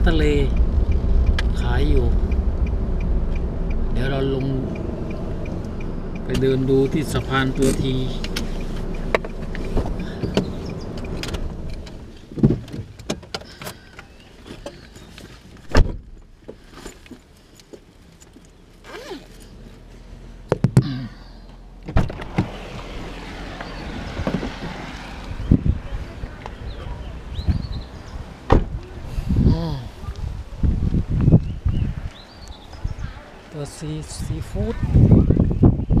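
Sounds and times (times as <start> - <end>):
car engine idling: 0.0 - 12.5
car door knocks and clicks: 12.4 - 13.4, 15.6 - 16.2, 28.5 - 28.7.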